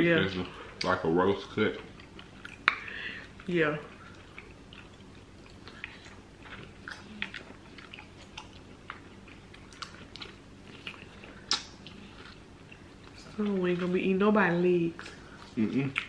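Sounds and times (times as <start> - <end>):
chewing food: 0.1 - 16.0
wet mouth clicks and smacks: 2.3 - 2.9, 11.4 - 12.0.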